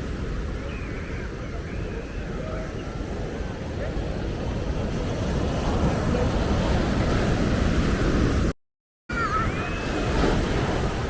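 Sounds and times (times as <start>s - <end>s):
ocean surf: 3.0s - 8.5s, 9.1s - 11.0s.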